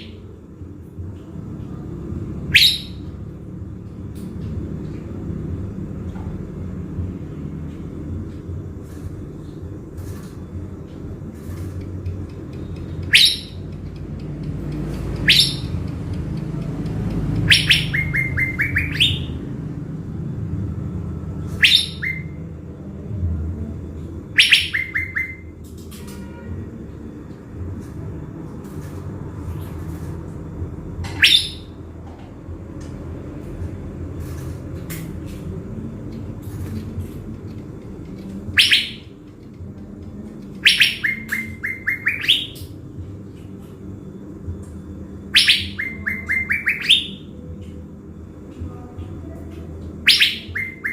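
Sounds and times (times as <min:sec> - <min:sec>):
bird calling with downward notes: 0:02.4 - 0:03.2, 0:12.6 - 0:14.1, 0:14.7 - 0:19.5, 0:21.4 - 0:22.4, 0:24.3 - 0:25.6, 0:31.1 - 0:31.8, 0:38.1 - 0:39.2, 0:39.8 - 0:42.8, 0:45.2 - 0:47.4, 0:49.9 - 0:50.9.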